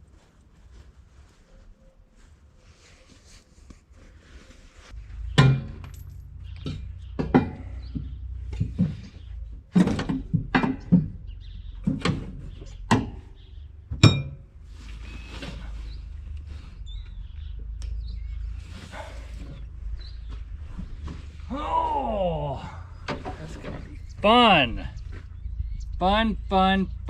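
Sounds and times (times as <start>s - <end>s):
metal tools clinking: 5.1s - 7.6s
low rumble: 13.2s - 27.0s.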